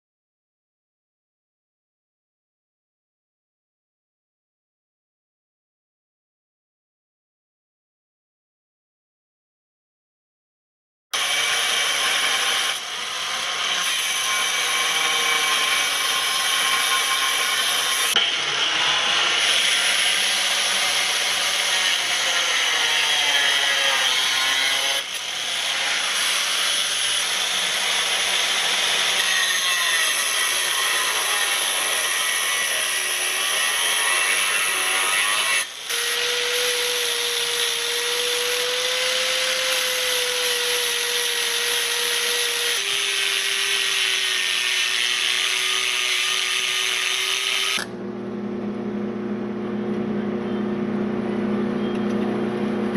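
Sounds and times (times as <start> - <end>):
power tool running under load: 25.0 - 52.9
steady whine: 47.8 - 52.9.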